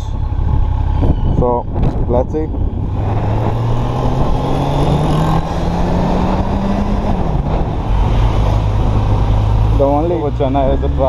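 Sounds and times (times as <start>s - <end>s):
wind rushing over microphone: 0.0s - 11.0s
motorcycle engine accelerating: 2.6s - 11.0s.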